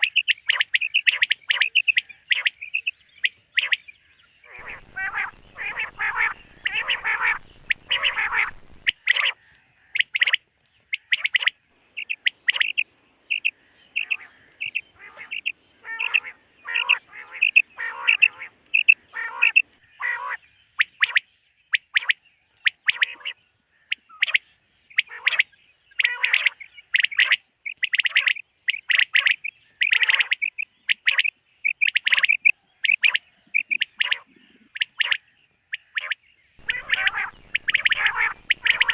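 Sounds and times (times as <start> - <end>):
quail calling: 4.5 - 9.4, 11.0 - 20.9, 36.0 - 38.9.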